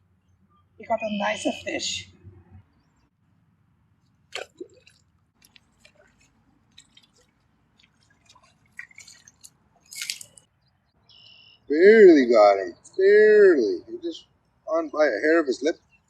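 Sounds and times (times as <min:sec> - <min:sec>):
water dripping and splashing: 0:04.0 - 0:10.5.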